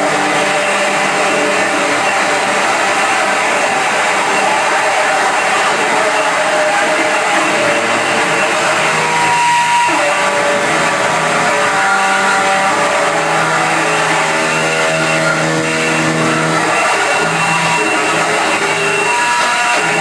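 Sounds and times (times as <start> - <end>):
electronic noise music: 0.0 - 20.0.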